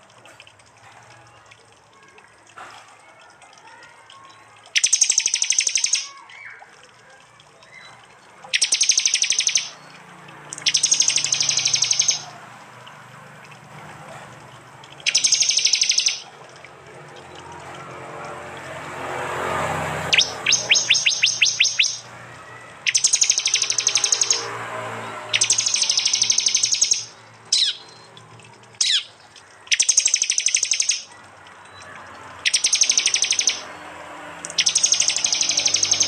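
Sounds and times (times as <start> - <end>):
bird calling in rapid high notes: 4.7 - 6.8, 7.6 - 12.5, 15.0 - 16.4, 19.4 - 28.2, 28.8 - 33.8, 34.4 - 36.0.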